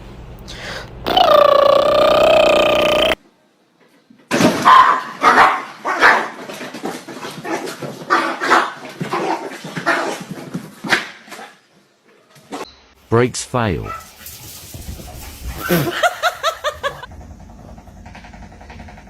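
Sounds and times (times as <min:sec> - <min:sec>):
dog barking: 0:04.6 - 0:06.4, 0:13.8 - 0:14.3.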